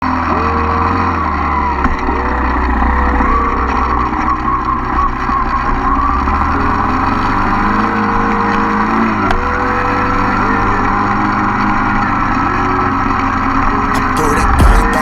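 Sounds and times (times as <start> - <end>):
dirt bike engine accelerating: 0.0 - 15.0.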